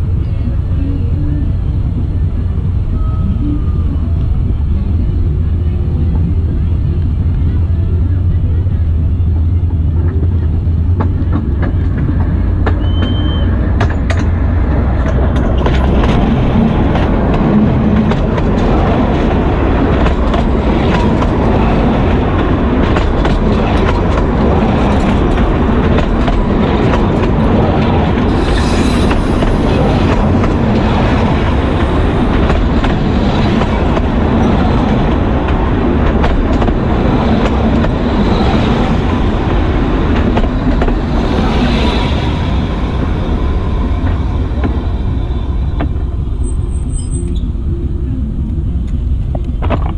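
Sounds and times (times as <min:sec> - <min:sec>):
diesel locomotive engine drone: 0:00.0 - 0:49.9
train wheels clattering on rails: 0:09.4 - 0:47.0.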